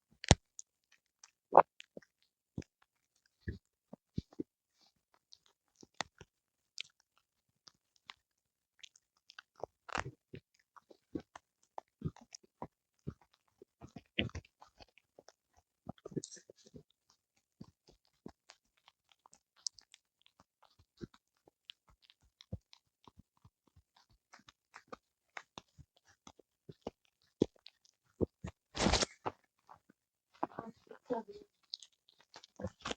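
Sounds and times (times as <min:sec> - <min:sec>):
dog chewing with wet crunches: 0:07.6 - 0:32.9.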